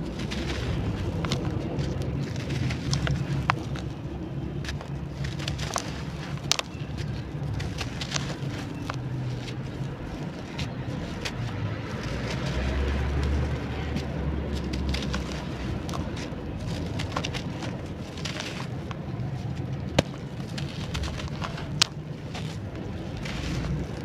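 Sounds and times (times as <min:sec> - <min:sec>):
clay crumbling with crunches: 0:00.0 - 0:24.0.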